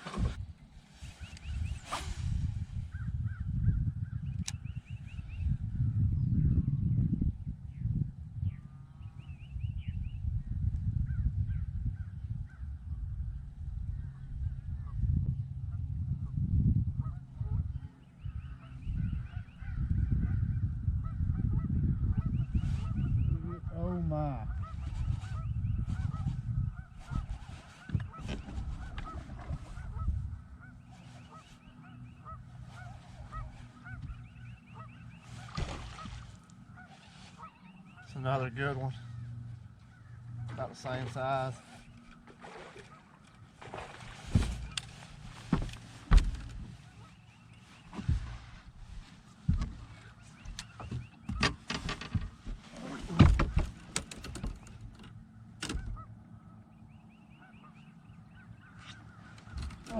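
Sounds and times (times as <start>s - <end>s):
knocks and thumps on boat: 0.0s - 0.5s, 27.0s - 30.3s, 32.2s - 36.4s, 42.2s - 56.0s, 59.0s - 59.9s
distant birds calling: 0.0s - 6.7s, 8.4s - 10.3s, 17.0s - 59.9s
wind rumble: 0.0s - 40.8s, 43.4s - 57.2s
geese honking: 24.3s - 43.4s, 44.2s - 48.6s, 55.7s - 59.9s
handling noise: 41.8s - 56.0s, 58.8s - 59.9s.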